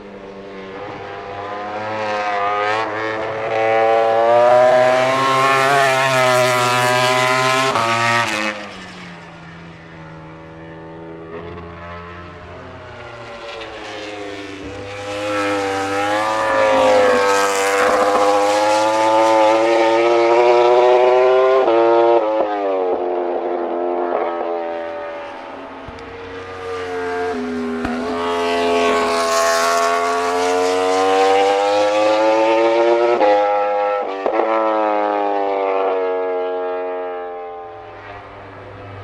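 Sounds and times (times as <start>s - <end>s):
race motorcycle at high revs: 0.8s - 8.7s, 13.6s - 25.1s, 25.9s - 36.7s.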